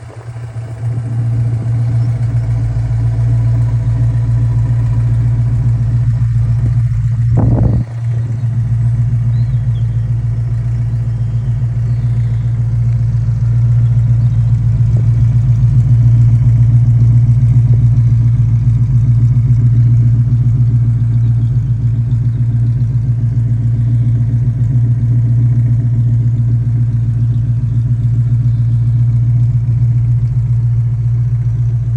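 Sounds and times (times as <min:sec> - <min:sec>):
car engine running: 0:00.0 - 0:31.9
engine throttle blip: 0:00.0 - 0:31.9.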